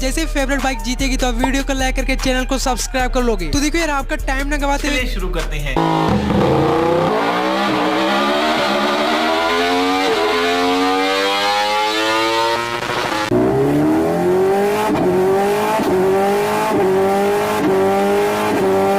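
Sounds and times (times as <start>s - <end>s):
motorcycle engine accelerating: 5.8s - 18.9s.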